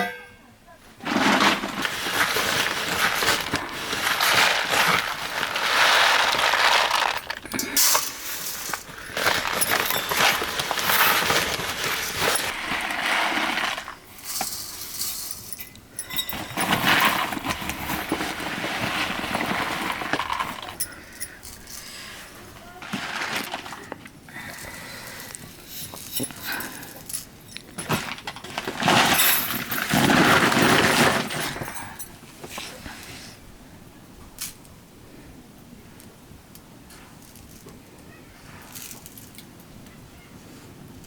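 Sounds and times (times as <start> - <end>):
metal dishes and utensils clinking: 1.0 - 21.9.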